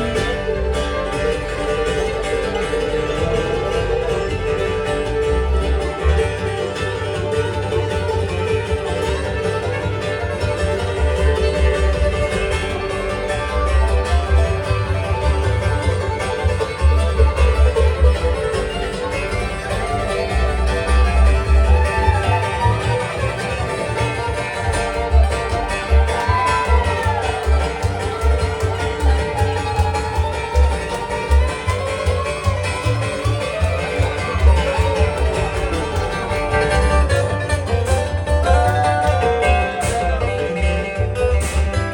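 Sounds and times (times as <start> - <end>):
banjo: 0.0 - 41.9
bass pulse: 0.0 - 41.9
fiddle: 0.0 - 41.9
guitar: 0.0 - 41.9
mandolin: 0.0 - 41.9.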